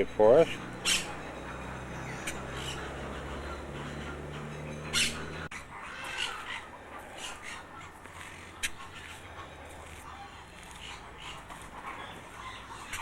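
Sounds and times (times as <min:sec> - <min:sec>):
steady low hum: 0:00.0 - 0:05.5
short bird calls: 0:00.0 - 0:07.7
bird squawk: 0:00.0 - 0:13.0.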